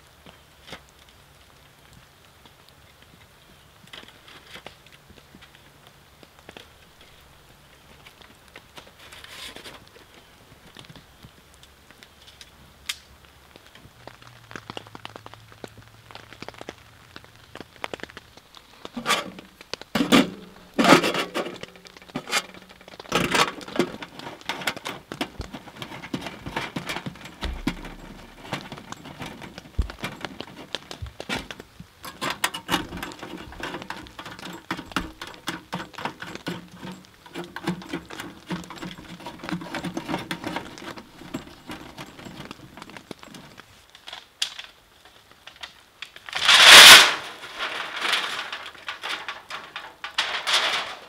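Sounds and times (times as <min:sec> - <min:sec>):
rain pattering on a tent: 0:00.0 - 0:51.0.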